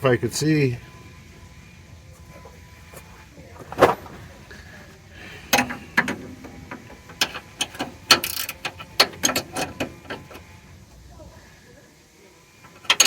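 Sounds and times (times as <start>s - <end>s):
ratcheting wrench clicking: 5.5s - 10.4s, 12.7s - 13.0s.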